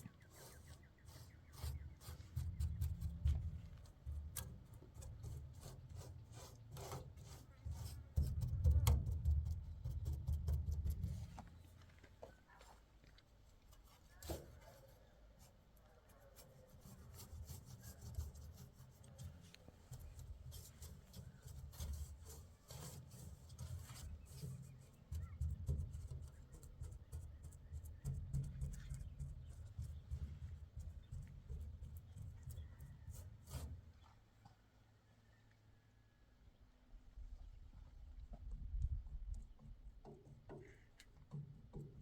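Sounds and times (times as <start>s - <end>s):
rubbing and scraping: 0.0s - 11.7s, 16.2s - 34.2s.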